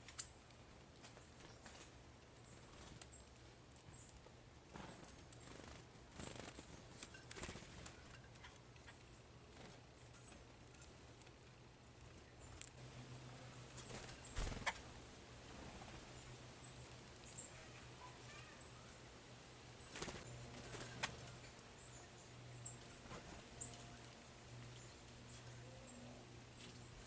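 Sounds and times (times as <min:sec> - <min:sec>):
low steady hum: 0:00.0 - 0:27.0
faint high bird chirps: 0:10.1 - 0:10.4, 0:16.6 - 0:22.9.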